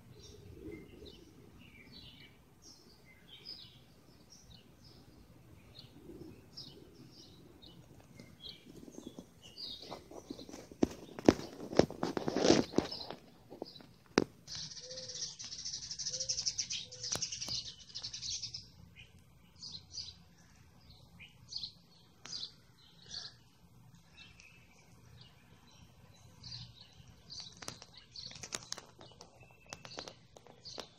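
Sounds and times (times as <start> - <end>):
songbirds chirping and trilling: 0.0 - 30.9.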